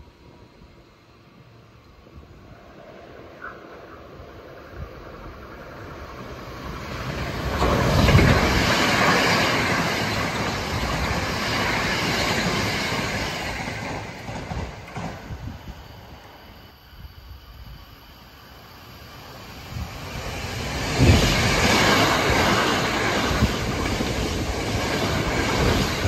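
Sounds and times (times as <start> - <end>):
electric train passing: 0.0 - 26.0.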